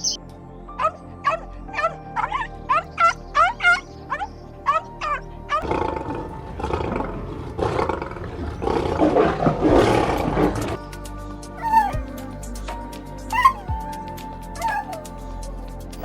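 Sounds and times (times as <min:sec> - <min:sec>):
light background music: 0:00.0 - 0:16.0
large animal roaring: 0:05.6 - 0:10.8
short high yips: 0:11.6 - 0:12.0, 0:13.3 - 0:13.7, 0:14.6 - 0:15.1.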